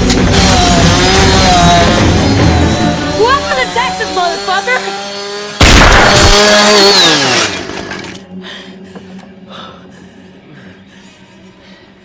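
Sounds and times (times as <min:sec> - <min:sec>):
chainsaw engine whine: 0:00.0 - 0:08.4
vehicle crash: 0:05.6 - 0:08.2.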